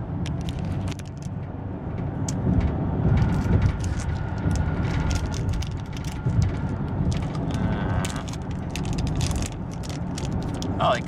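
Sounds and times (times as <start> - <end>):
car cabin rumble: 0.0 - 11.0
plastic wrapper crinkling: 3.3 - 11.0.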